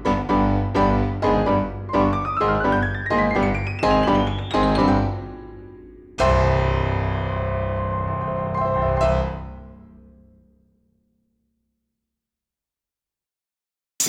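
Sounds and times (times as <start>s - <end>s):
piano music: 0.0s - 10.2s.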